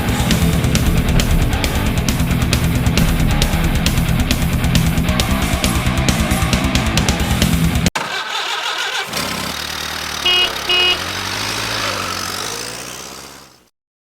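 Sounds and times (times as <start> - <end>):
heavy metal music: 0.0 - 7.9
vehicle engine running: 0.0 - 13.7
car horn honking: 8.0 - 13.2.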